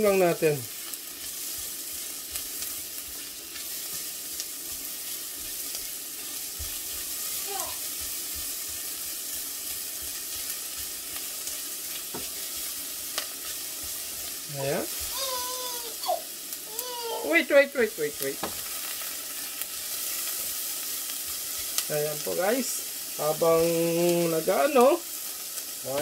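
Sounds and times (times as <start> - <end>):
spatula stirring in saucepan: 0.0 - 17.3
onion sizzling in hot oil: 0.0 - 26.0.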